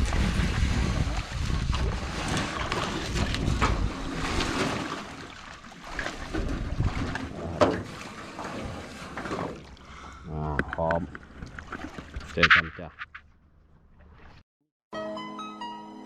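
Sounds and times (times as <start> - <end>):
wind rumbling on microphone: 0.0 - 4.6, 6.3 - 7.3
water noise around boat: 0.0 - 14.4.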